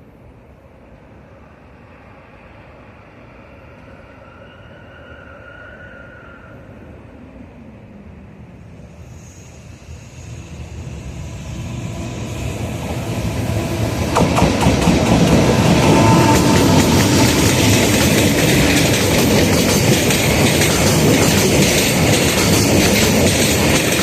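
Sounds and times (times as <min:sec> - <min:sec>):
freight train passing: 0:00.0 - 0:24.0
wagons rumble and wheel clatter: 0:12.8 - 0:24.0.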